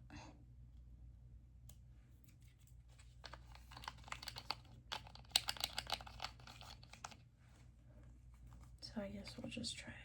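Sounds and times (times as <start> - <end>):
fingers clicking on plastic container: 3.6 - 7.2.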